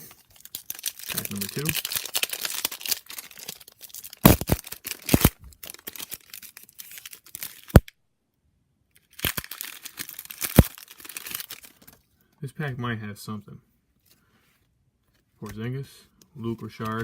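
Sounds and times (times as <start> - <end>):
plastic wrapper tearing and crinkling: 0.0 - 7.9, 9.0 - 12.0.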